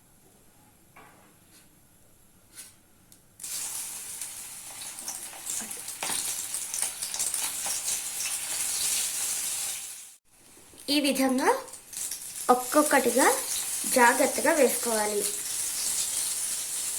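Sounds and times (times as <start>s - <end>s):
oil popping and crackling: 3.4s - 16.9s
prawns sizzling in hot oil: 3.4s - 16.9s.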